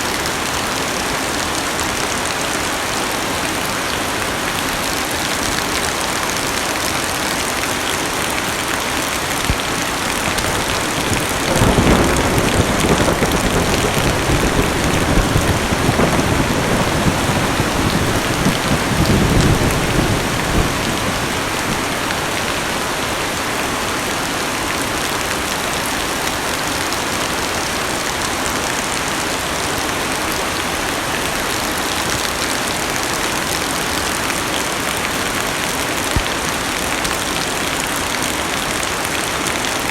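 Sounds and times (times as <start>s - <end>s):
heavy rain on car roof: 0.0s - 39.9s
thunder rumbling: 9.4s - 24.4s.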